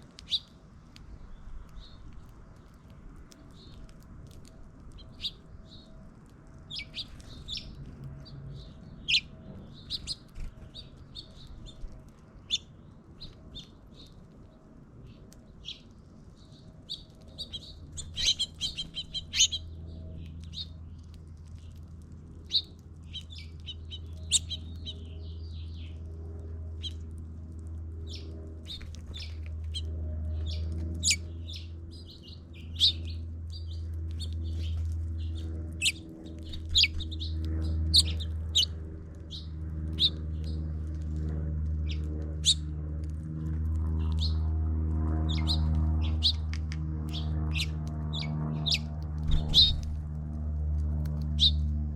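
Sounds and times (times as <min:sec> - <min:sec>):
steady low hum: 0:00.0 - 0:51.9
songbirds chirping: 0:00.1 - 0:42.8, 0:45.2 - 0:50.1, 0:51.1 - 0:51.8.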